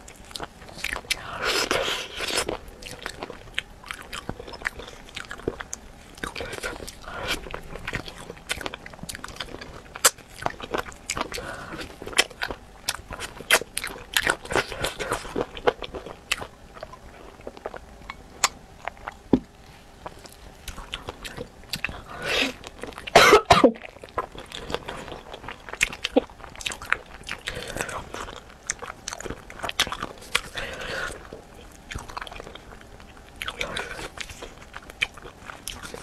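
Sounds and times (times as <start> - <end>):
crunchy chewing: 0.0 - 23.2, 23.8 - 36.0
person coughing: 23.1 - 23.8.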